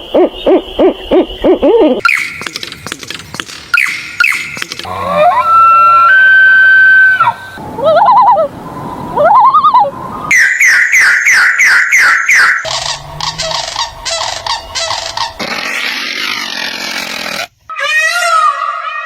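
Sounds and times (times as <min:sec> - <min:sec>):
bird-like animal calls: 0:00.1 - 0:06.0, 0:10.3 - 0:19.0.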